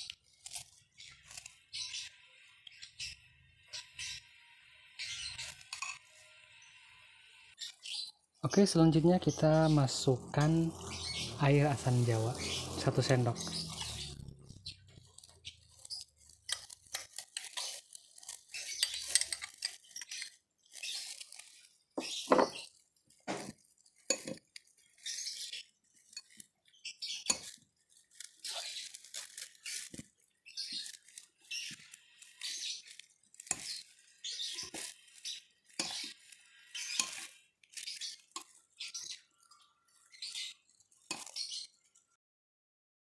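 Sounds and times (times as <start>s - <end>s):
spoon scraping glass bowl: 5.0s - 6.7s, 8.8s - 41.8s.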